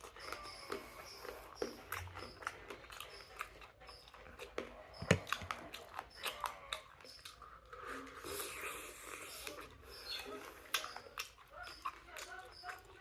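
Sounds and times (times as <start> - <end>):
chewing and biting: 0.0 - 13.0.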